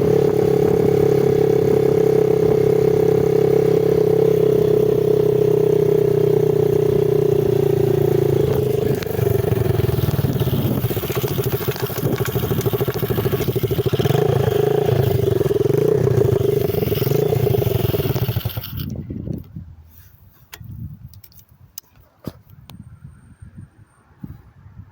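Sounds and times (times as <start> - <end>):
dirt bike engine revving: 0.0 - 19.2.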